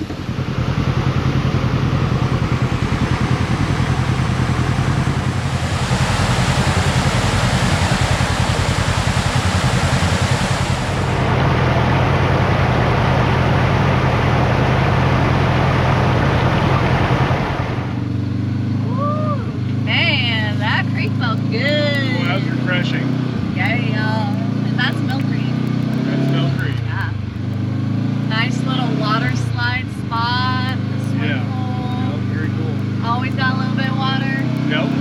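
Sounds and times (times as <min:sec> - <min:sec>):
loud rushing noise: 0:00.0 - 0:18.1
utility vehicle engine running: 0:00.0 - 0:35.0.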